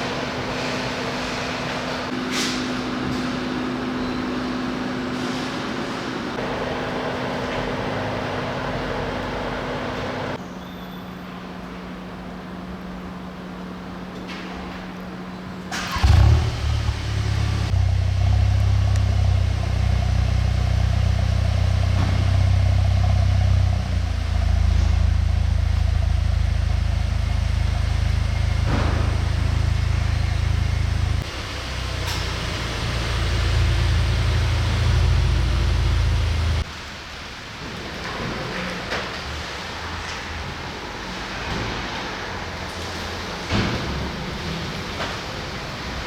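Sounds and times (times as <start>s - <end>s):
car engine droning: 0.0s - 10.4s, 11.6s - 36.9s.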